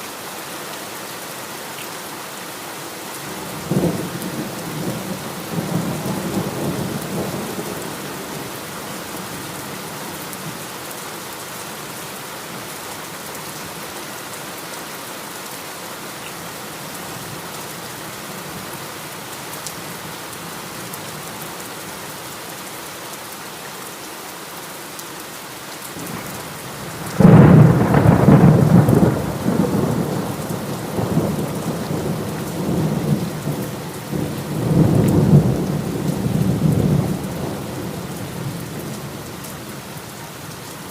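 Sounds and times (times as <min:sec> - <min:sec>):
heavy rain hissing: 0:00.0 - 0:40.9
thunder rumbling: 0:26.0 - 0:39.0
loud thunderclap: 0:27.1 - 0:33.2.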